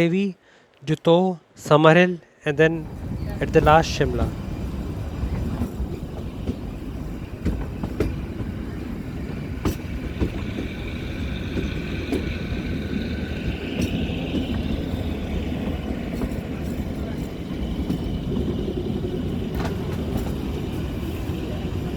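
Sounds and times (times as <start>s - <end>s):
train rumbling: 2.5s - 21.9s
high squeal of train wheels: 2.8s - 21.9s
wheels clicking over rail joints: 2.8s - 21.9s.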